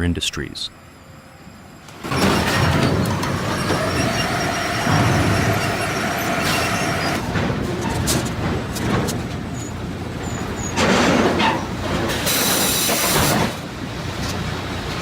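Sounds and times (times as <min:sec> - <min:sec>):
machinery rumble: 0:00.4 - 0:12.2
faint metal squeals: 0:00.9 - 0:08.3, 0:09.5 - 0:11.8.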